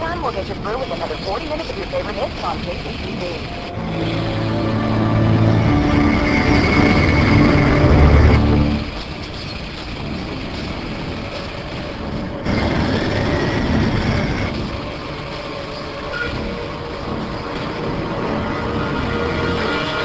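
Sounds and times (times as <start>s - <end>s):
traffic engine rumble: 0.0s - 20.0s.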